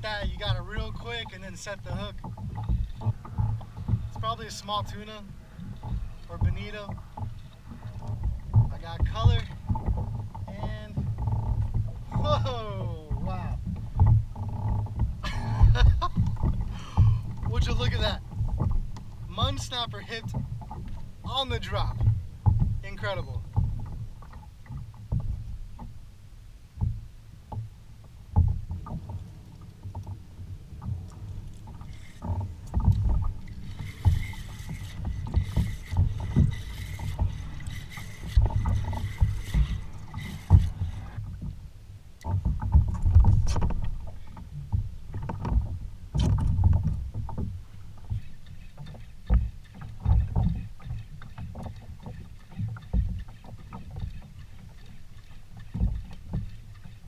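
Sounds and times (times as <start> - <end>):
wind buffeting microphone: 0.0 - 24.2, 28.3 - 41.7
low thumps: 0.0 - 26.0, 26.8 - 41.6, 42.3 - 48.3
water slapping kayak hull: 0.0 - 57.0.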